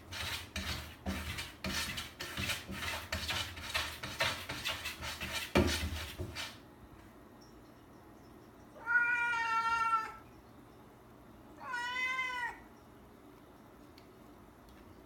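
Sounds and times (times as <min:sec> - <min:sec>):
cat meowing: 0:08.8 - 0:10.2, 0:11.6 - 0:12.7.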